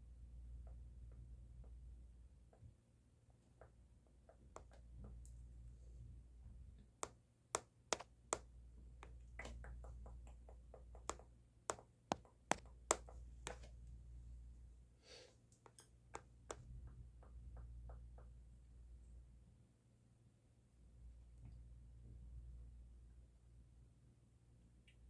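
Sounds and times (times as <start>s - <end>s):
sharp clicks and ticks: 9.0s - 13.7s.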